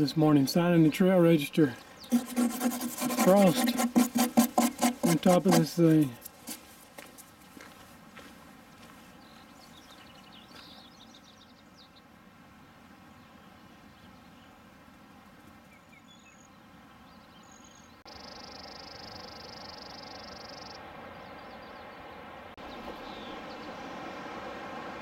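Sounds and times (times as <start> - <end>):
songbirds singing: 0.0 - 2.6, 8.5 - 14.7, 15.4 - 23.9
faint outdoor background: 0.0 - 25.0.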